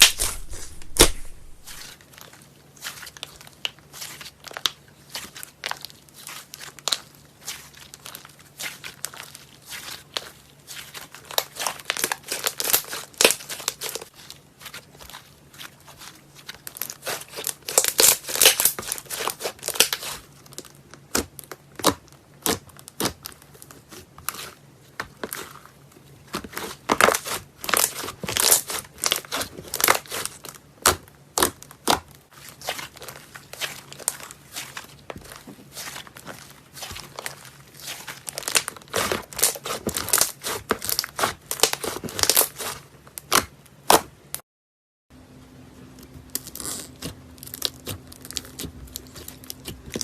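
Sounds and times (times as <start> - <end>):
slime crackling and popping: 0.0 - 2.0, 2.8 - 24.6, 26.3 - 44.1, 46.2 - 50.0.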